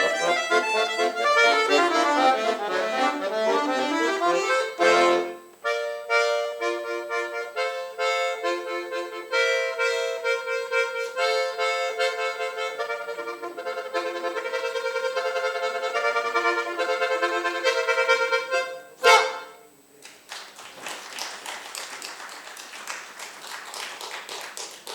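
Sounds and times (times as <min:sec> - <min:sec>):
accordion playing: 0:00.0 - 0:19.7
audience applause: 0:20.0 - 0:24.9.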